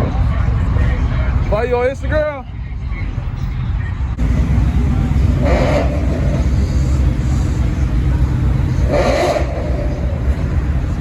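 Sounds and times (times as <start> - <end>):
car engines idling: 4.2 - 11.0.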